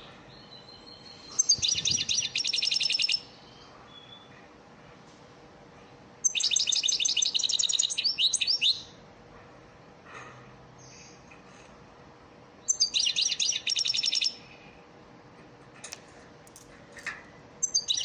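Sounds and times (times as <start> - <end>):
goldfinch twittering song: 0.4 - 3.3, 6.2 - 8.8, 12.7 - 14.4, 17.6 - 18.0.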